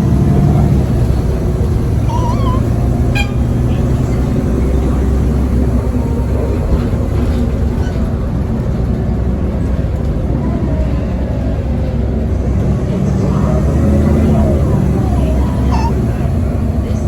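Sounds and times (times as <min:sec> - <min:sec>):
bus diesel engine drone: 0:00.0 - 0:17.0
road noise: 0:00.0 - 0:17.0.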